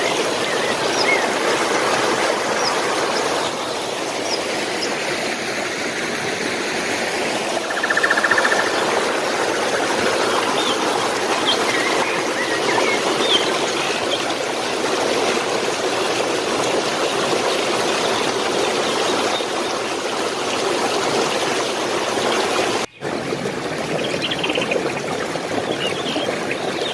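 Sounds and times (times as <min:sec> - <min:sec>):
stream water running: 0:00.0 - 0:26.9
bird chirps: 0:07.7 - 0:08.8, 0:24.0 - 0:25.1.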